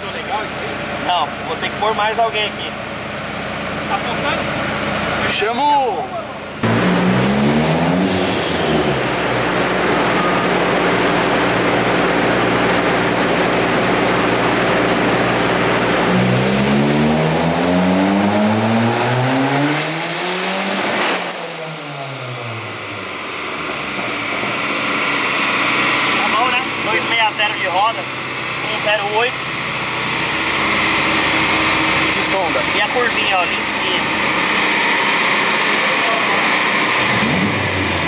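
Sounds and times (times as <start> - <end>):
car engine at full throttle: 0.0 - 38.0
high turbo whistle: 6.6 - 13.0, 17.9 - 23.7.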